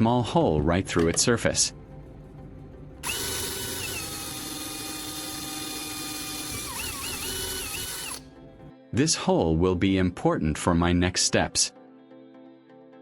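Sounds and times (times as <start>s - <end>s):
electric drill whining: 3.0s - 8.3s.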